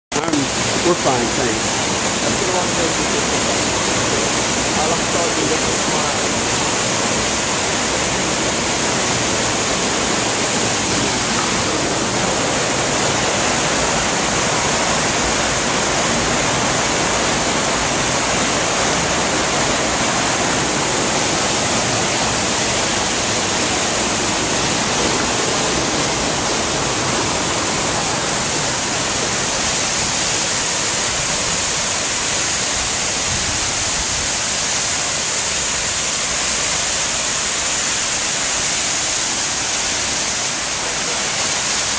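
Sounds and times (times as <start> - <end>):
waterfall rushing: 0.1 - 41.9.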